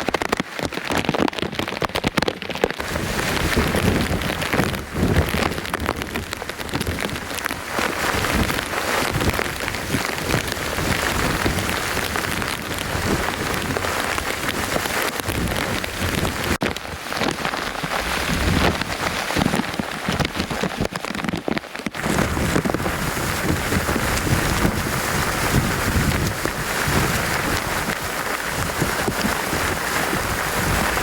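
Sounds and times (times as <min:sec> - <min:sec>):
heavy rain pouring: 0:00.0 - 0:31.0.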